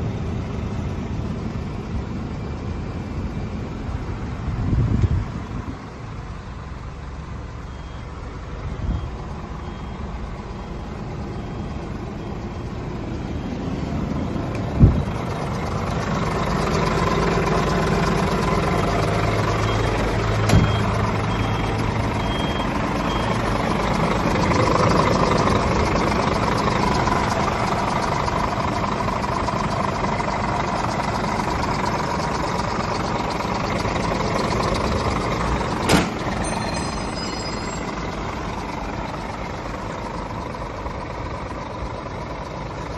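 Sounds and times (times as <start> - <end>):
diesel truck engine running: 0.0 - 42.9
faint high beep: 7.6 - 14.0, 19.3 - 27.1, 36.2 - 38.7.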